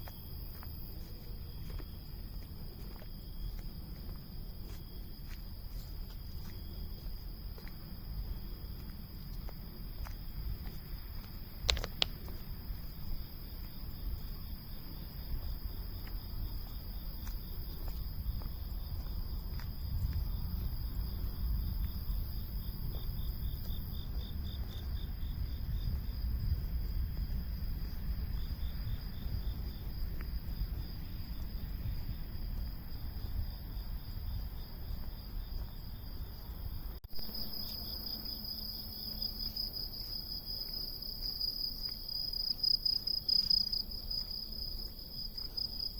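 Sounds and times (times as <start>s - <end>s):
cicadas buzzing: 0.0s - 45.9s.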